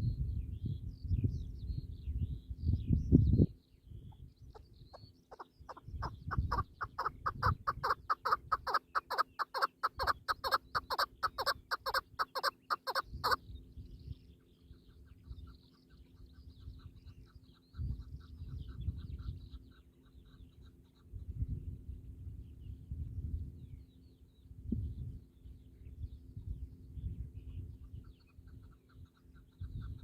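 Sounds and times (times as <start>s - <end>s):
small birds chirping: 0.0s - 30.0s
partridge clucking calls: 5.3s - 13.4s.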